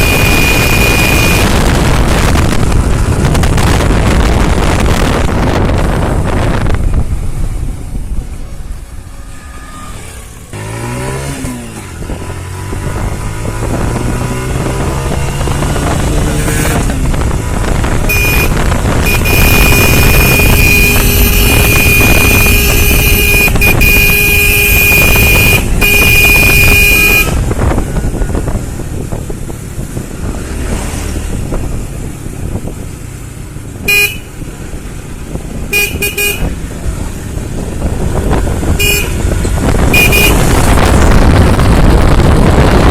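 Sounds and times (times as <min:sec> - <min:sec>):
horn sounding: 0:00.0 - 0:01.9, 0:17.9 - 0:27.6, 0:33.8 - 0:34.4, 0:35.7 - 0:36.6, 0:38.7 - 0:40.8
motorcycle engine accelerating: 0:00.0 - 0:42.9.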